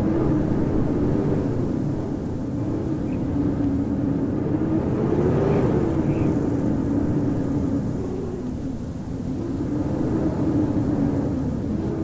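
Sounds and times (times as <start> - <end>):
howling blizzard wind: 0.0 - 12.0.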